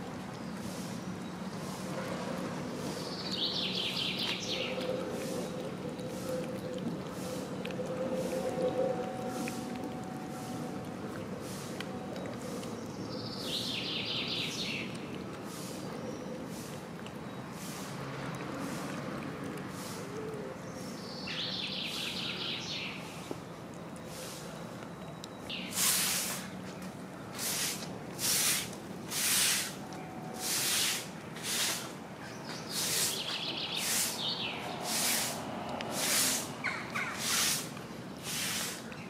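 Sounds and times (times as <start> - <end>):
outdoor background noise: 0.0 - 39.0
harsh hissing bursts: 25.7 - 26.5, 27.4 - 29.8, 30.4 - 31.9, 32.7 - 33.2, 33.8 - 34.2, 34.9 - 35.4, 36.0 - 36.5, 37.1 - 38.9.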